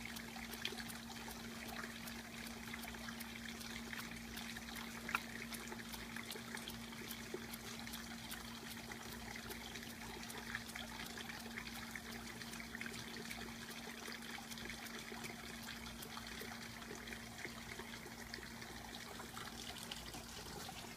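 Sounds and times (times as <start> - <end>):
droplet ticks: 0.0 - 11.5
water trickling and splashing: 0.0 - 20.9.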